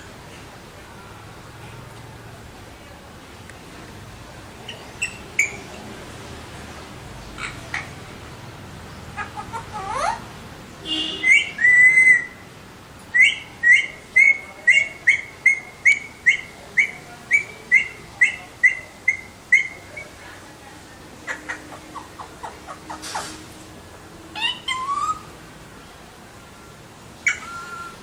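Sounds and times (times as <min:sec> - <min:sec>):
parakeet calling: 0:04.6 - 0:05.7, 0:07.4 - 0:08.2, 0:08.9 - 0:12.4, 0:13.2 - 0:20.2, 0:21.3 - 0:23.4, 0:24.3 - 0:25.3, 0:27.2 - 0:28.0.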